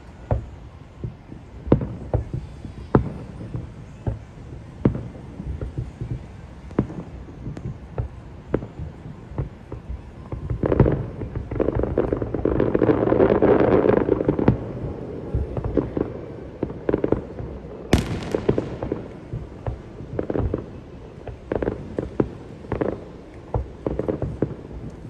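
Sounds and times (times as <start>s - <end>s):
fireworks crackling bursts: 0.0s - 25.0s
fireworks booming and popping: 0.3s - 25.0s
hissing crackle: 11.0s - 25.0s.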